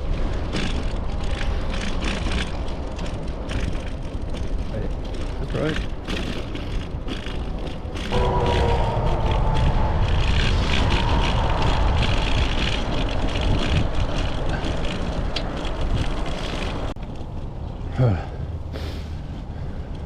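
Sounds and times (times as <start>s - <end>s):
tyres humming on pavement: 0.0s - 20.0s
wind rumbling on microphone: 0.0s - 20.0s
faint falling whine: 8.0s - 14.5s.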